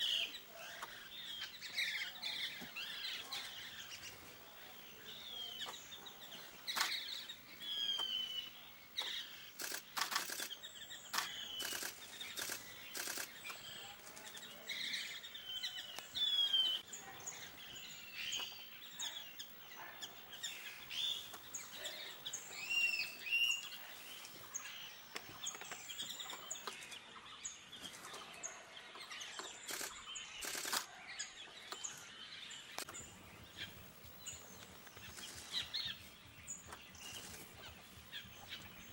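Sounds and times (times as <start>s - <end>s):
birds chirping and whistling: 5.1s - 14.0s, 15.0s - 16.9s
sharp clicks: 9.6s - 13.6s, 29.4s - 30.9s.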